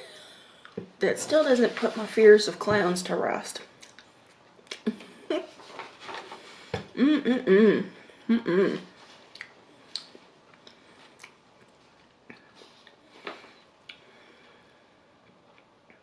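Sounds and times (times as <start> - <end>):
wavering hum of enjoyment: 7.0 - 8.9
mouth clicks: 9.3 - 11.4
chewing with mouth closed: 9.3 - 11.7.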